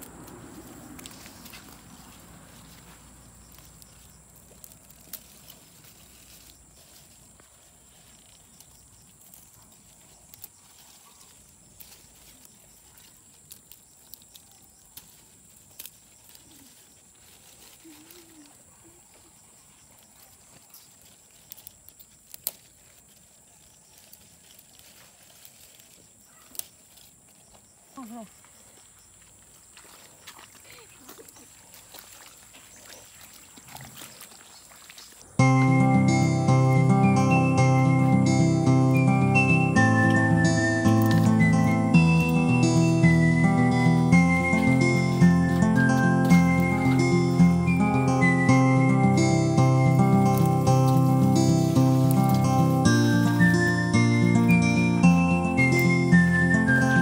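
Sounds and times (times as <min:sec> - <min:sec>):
stems snapping and leaves rustling: 0:00.0 - 0:27.6, 0:40.0 - 0:42.5, 0:44.2 - 0:48.4, 0:49.2 - 0:53.6.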